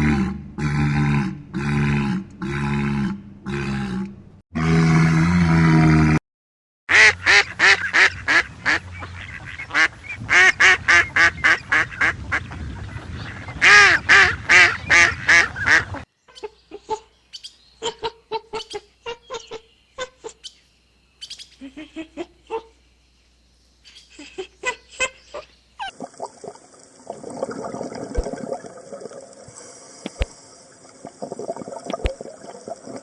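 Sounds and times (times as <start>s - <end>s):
waterfowl nasal calls: 13.6s - 20.6s, 21.2s - 22.8s, 23.9s - 25.9s.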